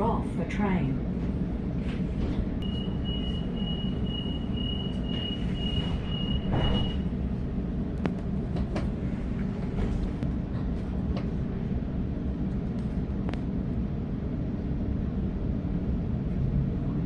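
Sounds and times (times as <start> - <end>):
train carriage hum: 0.0 - 17.0
train door warning beeping: 2.6 - 7.2.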